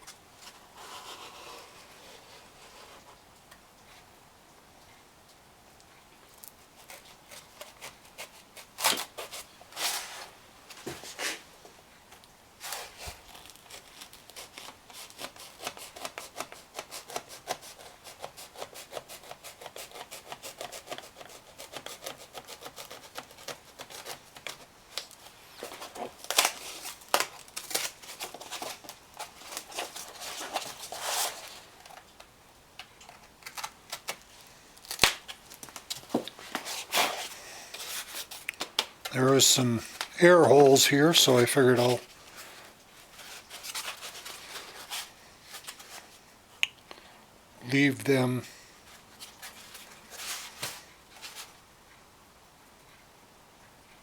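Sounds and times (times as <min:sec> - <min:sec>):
hand scraping strokes: 0:00.4 - 0:03.2.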